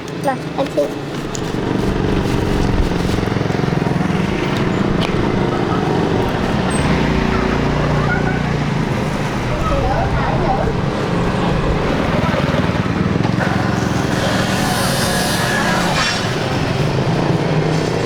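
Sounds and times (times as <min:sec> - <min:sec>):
vehicle engine running: 0:00.5 - 0:18.0.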